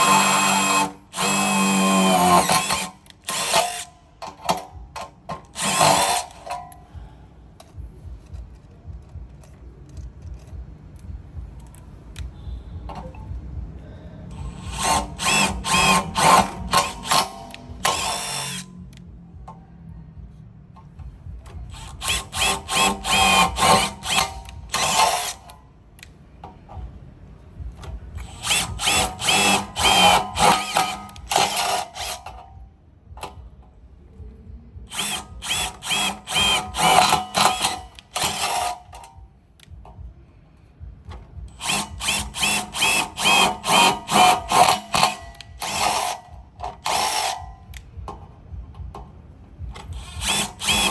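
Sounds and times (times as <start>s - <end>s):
impact driver hammering: 0.0s - 7.0s, 14.3s - 18.7s, 21.0s - 25.6s, 27.8s - 32.6s, 34.9s - 40.0s, 41.1s - 50.9s.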